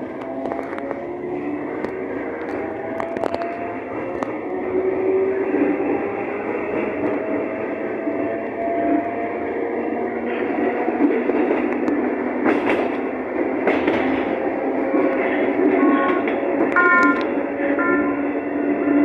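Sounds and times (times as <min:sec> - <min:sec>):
train rumbling running noise: 0:00.0 - 0:19.0
high-pitched tones: 0:16.8 - 0:18.4.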